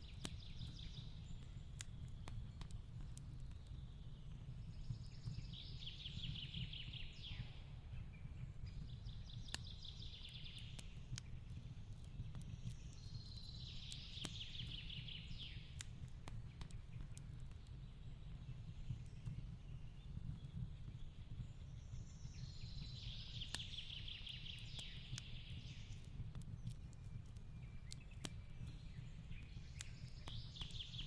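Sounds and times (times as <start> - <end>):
fireplace crackling and popping: 0.0 - 31.0
small bird singing trills: 16.8 - 31.0.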